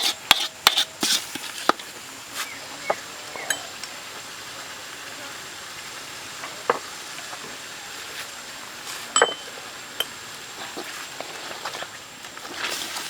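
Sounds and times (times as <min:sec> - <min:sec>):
steady hiss: 0:00.0 - 0:13.0
sharp clinks and knocks: 0:09.2 - 0:10.1.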